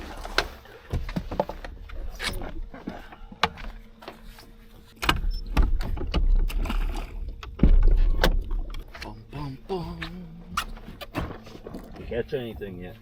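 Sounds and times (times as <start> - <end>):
clicks and knocks of boat gear: 0.0 - 9.3, 10.0 - 12.9
faint steady hum: 0.0 - 13.0
heavy low rumble: 5.1 - 12.8.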